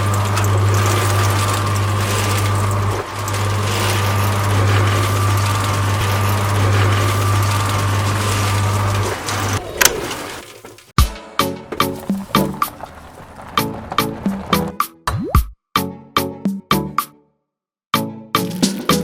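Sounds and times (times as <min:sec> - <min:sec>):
small electric motor humming: 0:00.0 - 0:10.6.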